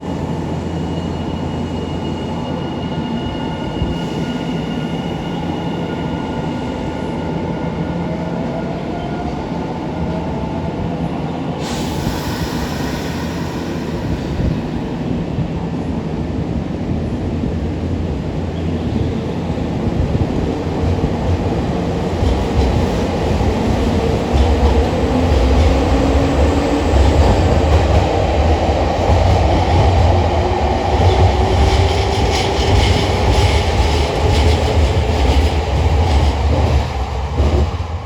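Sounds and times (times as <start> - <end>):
electric train rumble: 0.0 - 38.0
rush of hiss: 11.6 - 15.1.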